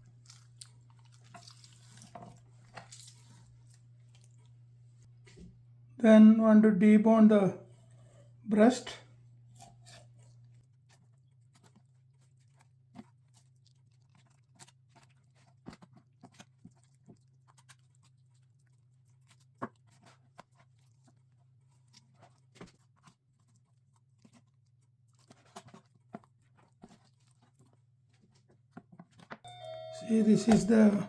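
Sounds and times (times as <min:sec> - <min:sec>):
knife cutting and scraping meat: 0:00.0 - 0:04.6, 0:09.5 - 0:12.6
meat tearing: 0:00.0 - 0:04.7, 0:11.5 - 0:22.8.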